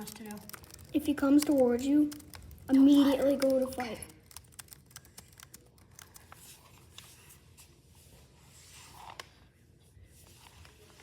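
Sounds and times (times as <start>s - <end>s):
small clicks and light taps: 0.0s - 6.4s.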